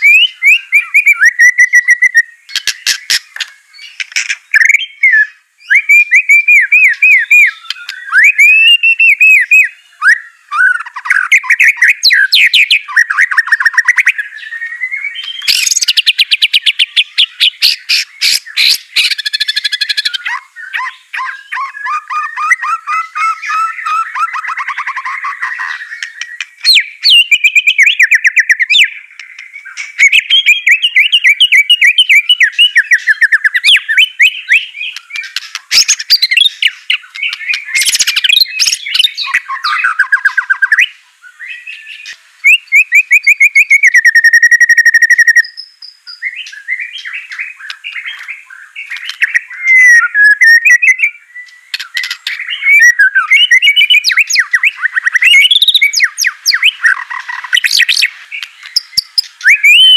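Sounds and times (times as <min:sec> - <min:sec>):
bird singing trills and whistles: 0:00.0 - 0:59.9.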